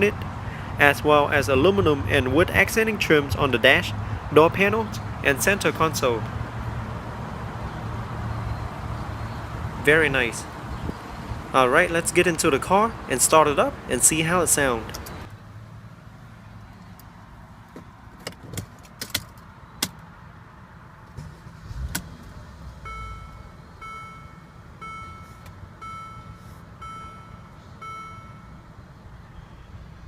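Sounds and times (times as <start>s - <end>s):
clicks and rattles in car: 17.6s - 20.0s
car warning chime: 22.8s - 28.9s.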